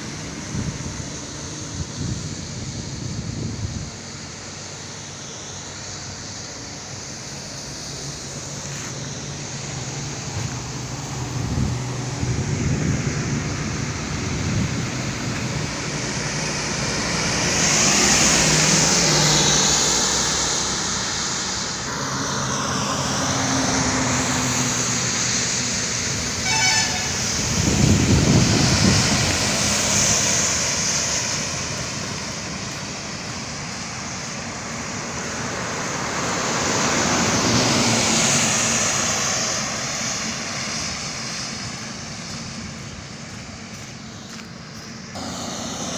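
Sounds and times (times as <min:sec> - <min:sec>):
highway vehicles passing: 0:00.0 - 0:45.9
short horn toot: 0:26.4 - 0:27.2.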